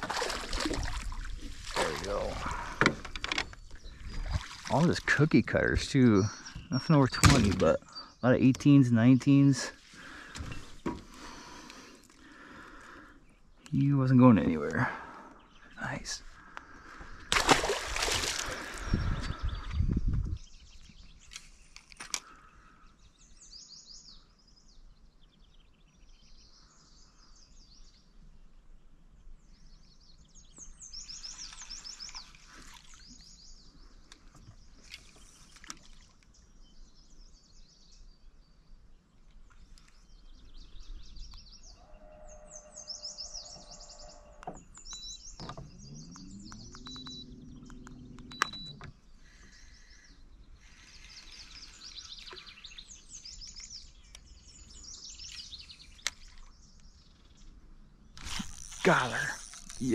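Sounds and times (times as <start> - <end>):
songbirds trilling and chirping: 0.0 - 59.9
low hum rising in pitch: 45.6 - 48.8.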